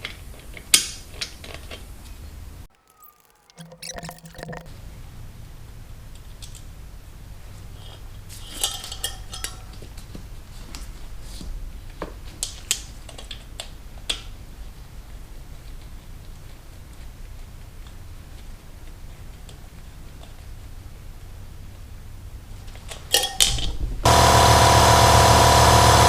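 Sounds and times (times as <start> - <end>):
tools and parts clinking: 2.7 - 4.7.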